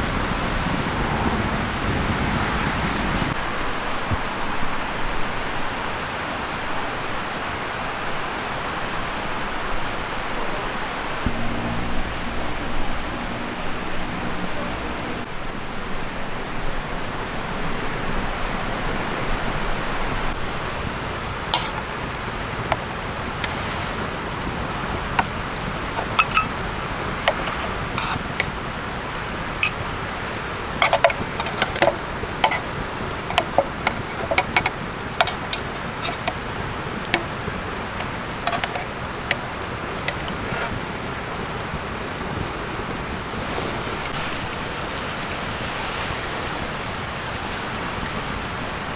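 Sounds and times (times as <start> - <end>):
fire hiss: 20.3 - 41.8, 42.7 - 48.5
campfire crackling and popping: 20.3 - 48.2.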